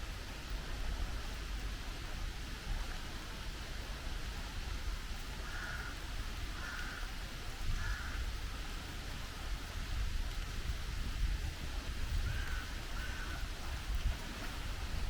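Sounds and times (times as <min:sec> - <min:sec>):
steady rain falling: 0:00.0 - 0:15.0
crow cawing: 0:05.4 - 0:06.0, 0:06.6 - 0:07.1, 0:07.8 - 0:08.2, 0:12.3 - 0:13.4.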